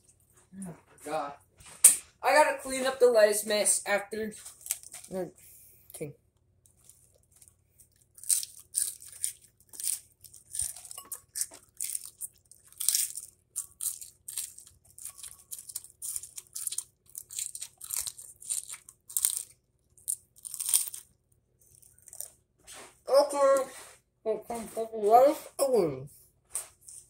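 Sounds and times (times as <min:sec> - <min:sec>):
lettuce crunching while chewed: 0:04.4 - 0:05.1, 0:06.6 - 0:22.9.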